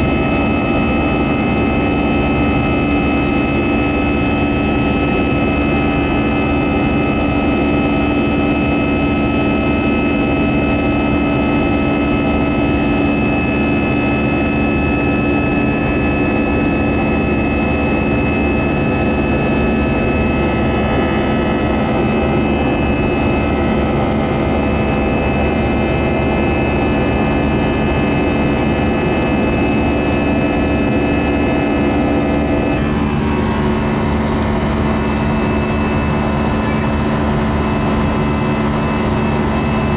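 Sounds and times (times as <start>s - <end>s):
jet engine drone: 0.0s - 39.9s.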